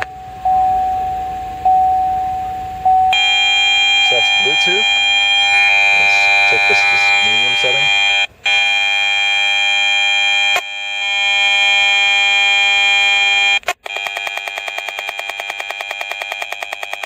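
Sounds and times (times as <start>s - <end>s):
loud electronic buzz: 3.2s - 13.6s.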